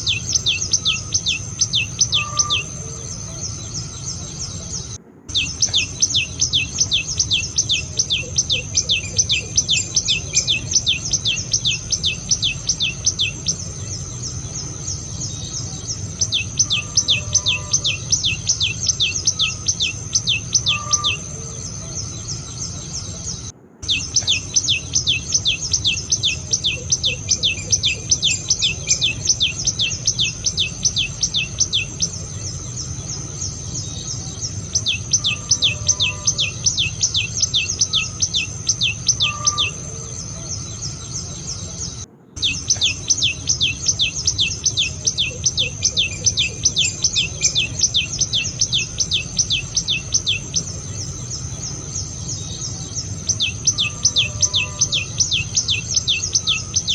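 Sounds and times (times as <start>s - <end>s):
bird calling sharp falling notes: 0.0s - 8.7s
high insect drone: 0.0s - 56.9s.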